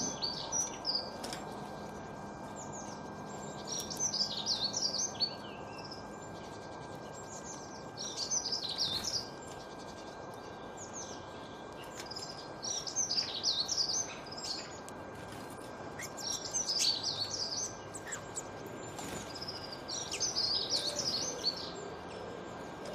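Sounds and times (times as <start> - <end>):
songbird warbling: 16.0 - 18.5.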